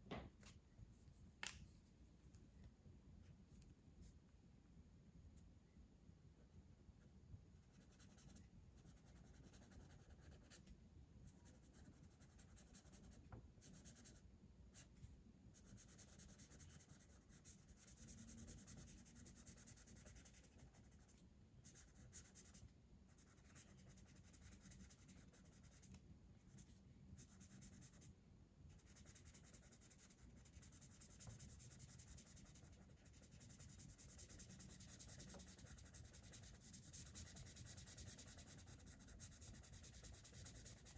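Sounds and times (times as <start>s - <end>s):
colouring tool scratching on paper: 28.8s - 40.9s.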